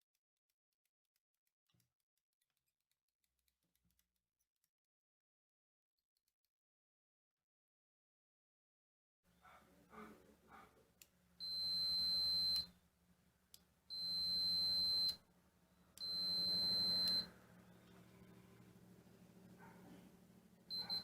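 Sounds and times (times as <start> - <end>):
long electronic beeps: 13.9 - 15.2, 16.0 - 17.4, 20.7 - 21.0.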